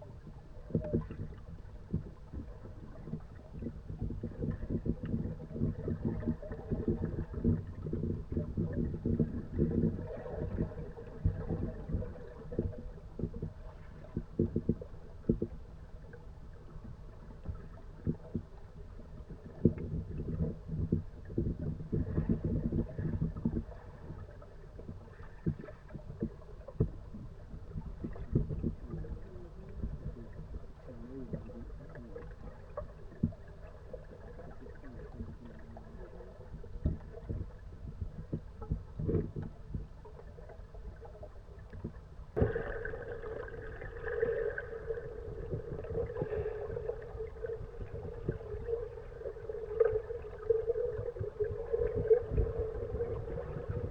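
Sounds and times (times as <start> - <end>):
low wind rumble on microphone: 0.0 - 33.6, 43.7 - 53.9
paddle knocking and splashing water: 41.8 - 53.9.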